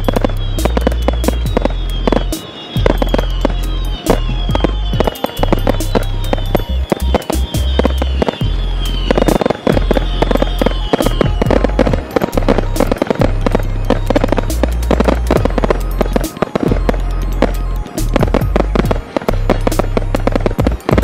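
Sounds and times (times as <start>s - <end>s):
firework whistle falling in pitch: 0.0s - 21.0s
fireworks bangs and crackles: 0.0s - 21.0s
music with heavy bass: 0.0s - 21.0s.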